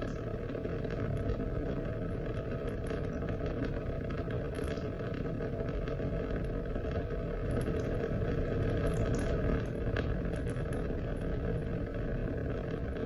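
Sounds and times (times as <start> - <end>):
dripping ticks: 7.4 - 11.3.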